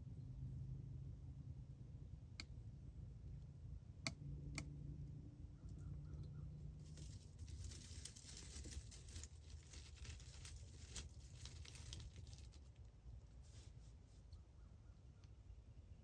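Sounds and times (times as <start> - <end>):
deer crackling and rustling: 6.8 - 14.3.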